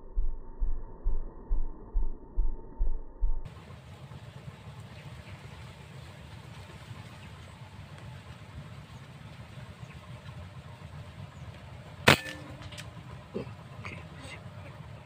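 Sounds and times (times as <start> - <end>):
low background rumble: 0.0 - 15.0
air rifle shot: 12.1 - 12.7.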